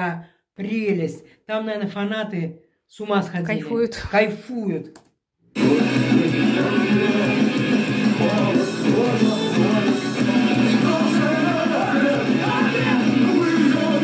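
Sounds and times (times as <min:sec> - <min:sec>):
loud rock band with electric guitars: 0:05.6 - 0:14.0
man singing lead vocal: 0:05.6 - 0:14.0.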